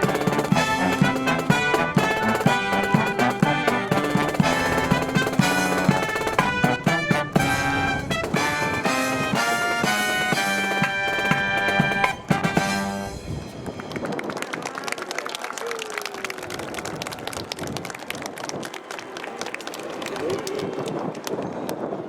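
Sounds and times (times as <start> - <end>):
marching brass band playing: 0.0 - 14.0.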